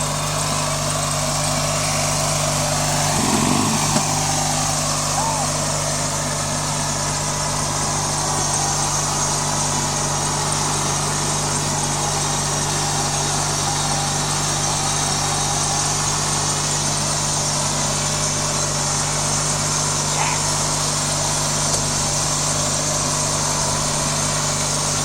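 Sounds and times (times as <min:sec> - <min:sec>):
riding lawn mower engine droning: 0:00.0 - 0:25.0.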